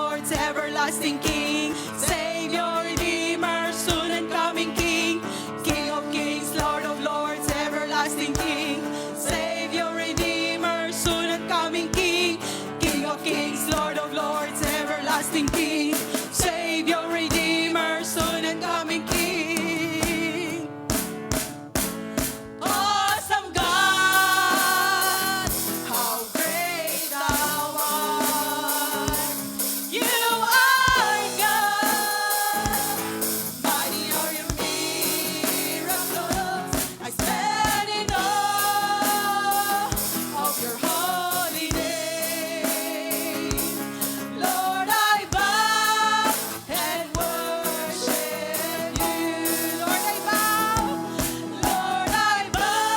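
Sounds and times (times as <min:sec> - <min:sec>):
group of singers: 0:00.0 - 0:21.3, 0:22.4 - 0:52.9
gospel band playing: 0:00.0 - 0:52.9
drum kit hits: 0:18.2 - 0:52.9.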